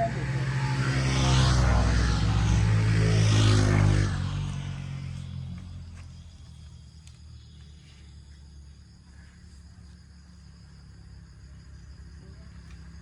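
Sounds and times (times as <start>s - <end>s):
motorbike engine running: 0.0s - 6.0s.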